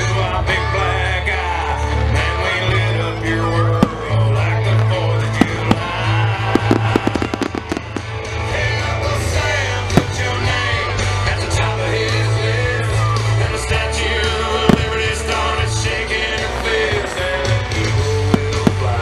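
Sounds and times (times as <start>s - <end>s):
loud music with singing: 0.0s - 19.0s
fireworks bursting: 2.5s - 11.3s, 14.2s - 19.0s.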